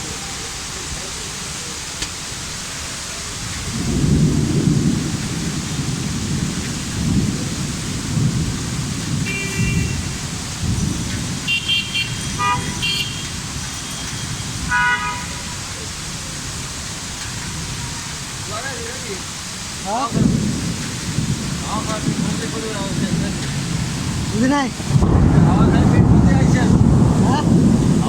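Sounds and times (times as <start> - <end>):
heavy rain pouring: 0.0 - 28.0
vehicle horn toots: 9.2 - 10.2, 11.5 - 15.7, 17.6 - 18.6
deep rumbling: 20.1 - 28.0.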